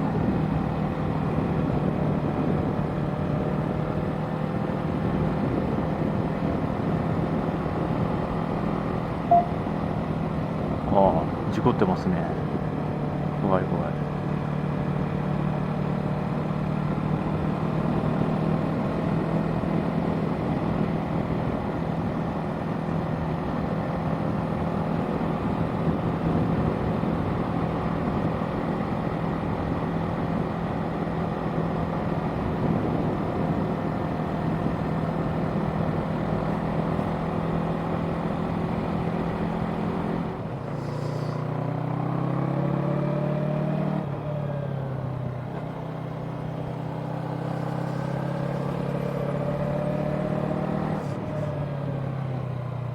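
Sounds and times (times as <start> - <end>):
wind noise on microphone: 0.0 - 10.9, 17.7 - 30.6, 31.6 - 37.2
motorcycle engine running: 14.0 - 43.3, 45.0 - 51.7.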